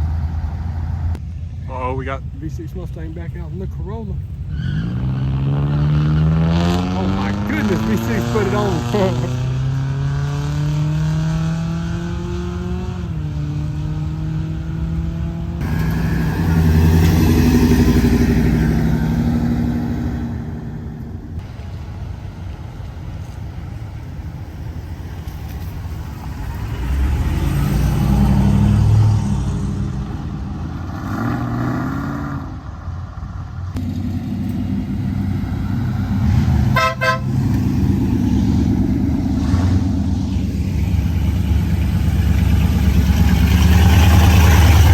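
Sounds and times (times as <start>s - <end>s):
car engines revving: 0.0s - 44.9s
car accelerating hard: 4.5s - 21.4s, 26.4s - 32.7s, 33.7s - 44.9s.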